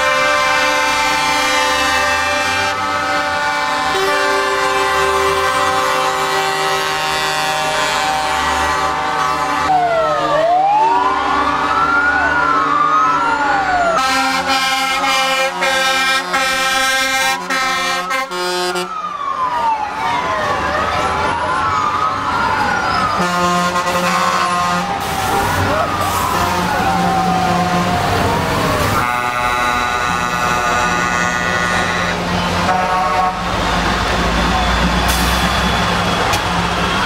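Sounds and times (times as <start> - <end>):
truck air horns blaring: 0.0 - 10.3, 13.9 - 19.1, 22.9 - 37.0
wailing siren: 0.0 - 37.0.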